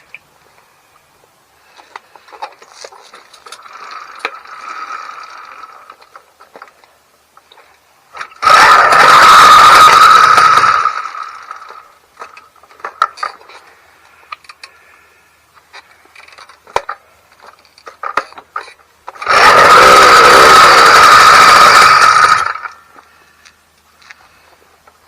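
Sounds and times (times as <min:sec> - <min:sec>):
two-stroke engine running loudly: 0:08.4 - 0:11.0, 0:19.2 - 0:22.6.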